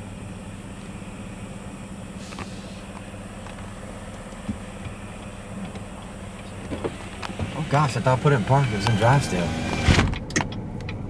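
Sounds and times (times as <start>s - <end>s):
car engine idling: 0.0s - 11.0s
short hiss: 2.2s - 2.9s.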